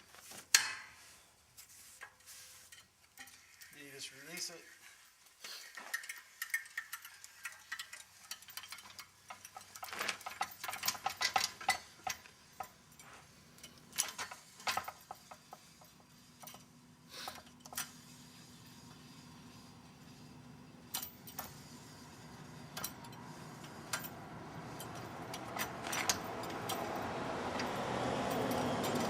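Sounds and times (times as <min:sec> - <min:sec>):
metallic clicks and clinks: 0:02.1 - 0:04.6, 0:05.2 - 0:16.7, 0:20.9 - 0:29.0.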